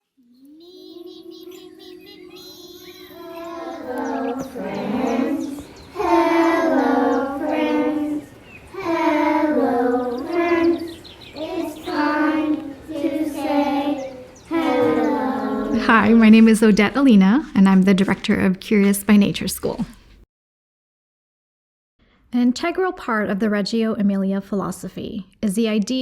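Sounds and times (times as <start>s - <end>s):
child singing: 0.0s - 15.9s.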